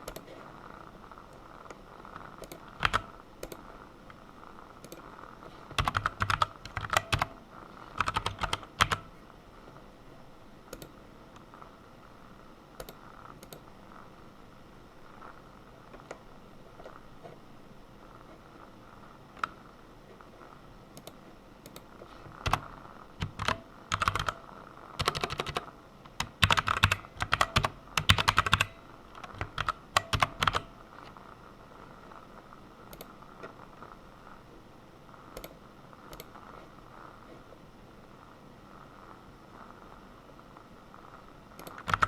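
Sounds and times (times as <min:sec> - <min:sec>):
computer keyboard typing: 0:00.0 - 0:00.4, 0:02.1 - 0:03.7, 0:04.8 - 0:09.1, 0:10.7 - 0:11.0, 0:12.8 - 0:13.6, 0:21.0 - 0:31.1, 0:32.9 - 0:33.2, 0:35.3 - 0:36.3, 0:41.6 - 0:42.0.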